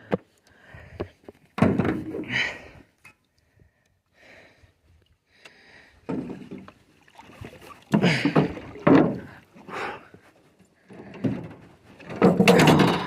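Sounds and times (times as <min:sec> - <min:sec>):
thumps and knocks on a boat: 0:00.9 - 0:02.3, 0:06.0 - 0:06.8, 0:07.8 - 0:09.4, 0:10.9 - 0:13.0.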